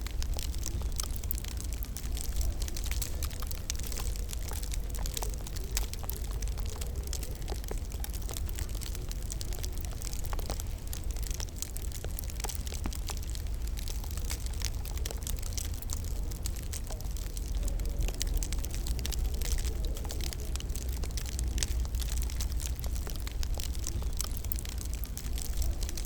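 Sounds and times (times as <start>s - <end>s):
low rumble of fire: 0.0s - 26.0s
wood fire crackling: 0.0s - 26.0s.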